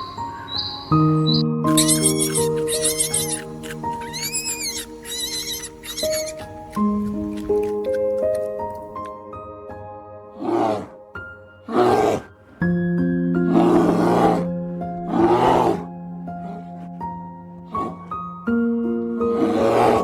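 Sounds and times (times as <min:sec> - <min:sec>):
animal rasping calls: 0:01.7 - 0:09.1, 0:10.4 - 0:11.0, 0:11.6 - 0:12.7, 0:13.4 - 0:18.4, 0:19.2 - 0:20.0.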